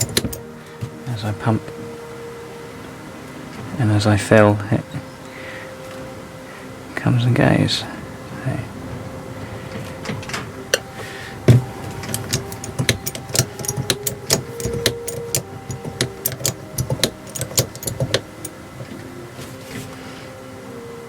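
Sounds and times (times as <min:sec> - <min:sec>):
metal clicks and clanks: 0:00.0 - 0:01.0, 0:09.7 - 0:19.0.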